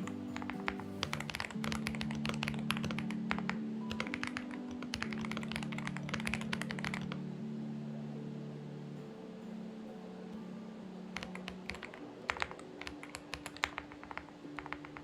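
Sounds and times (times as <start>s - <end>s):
mechanical keyboard typing: 0.0s - 7.2s, 11.1s - 15.0s
soft background music: 0.0s - 15.0s.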